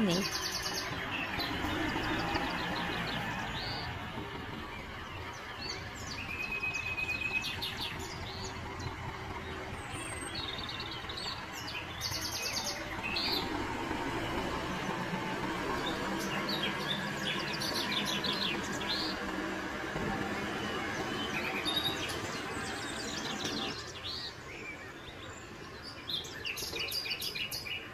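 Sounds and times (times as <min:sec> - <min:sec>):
tractor engine running: 0:00.0 - 0:26.4
birds chirping and trilling: 0:00.0 - 0:27.9.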